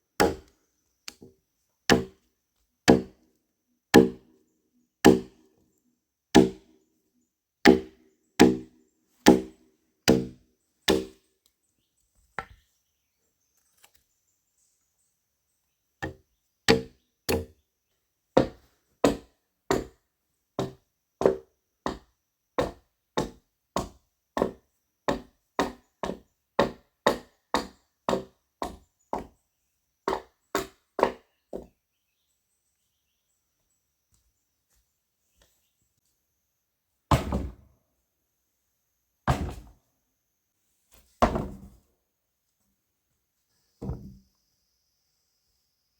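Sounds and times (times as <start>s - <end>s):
wood being chopped: 0.2s - 0.5s, 1.9s - 2.2s, 2.9s - 3.2s, 4.0s - 4.3s, 5.0s - 5.4s, 6.4s - 6.7s, 7.7s - 11.2s, 16.0s - 17.5s, 22.6s - 28.8s, 37.1s - 37.7s, 39.3s - 39.7s, 41.2s - 41.8s.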